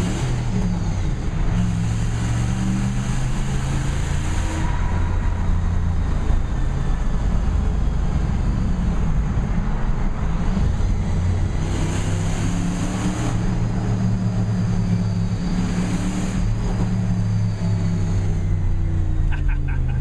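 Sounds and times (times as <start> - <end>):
truck exhaust droning: 13.3 - 20.0.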